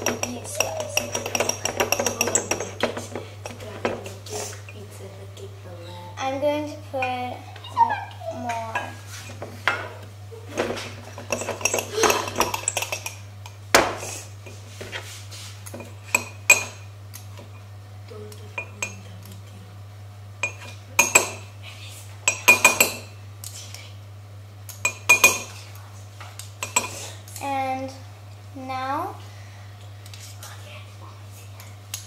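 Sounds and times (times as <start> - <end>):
spoon clinking against a mug: 0.0 - 2.8, 24.8 - 25.5
steady low hum: 0.0 - 32.0.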